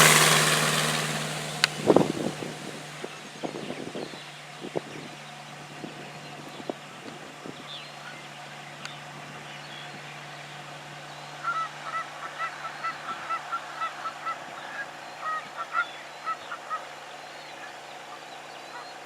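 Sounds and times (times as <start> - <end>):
birds honking: 7.7 - 19.0.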